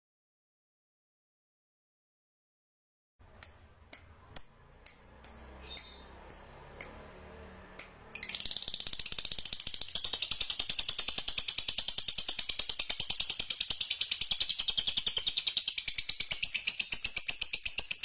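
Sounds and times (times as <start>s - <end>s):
songbird chip notes: 3.4s - 9.2s
bird chatter: 5.3s - 6.6s, 8.2s - 18.0s.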